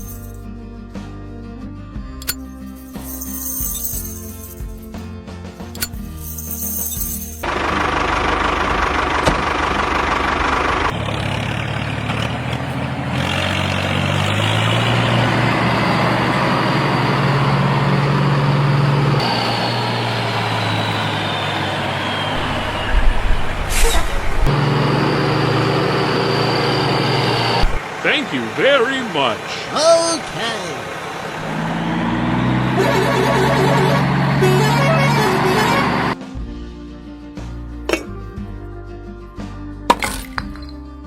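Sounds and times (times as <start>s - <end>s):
heavy engine running: 7.4s - 36.5s
high whine falling in pitch: 20.8s - 24.5s.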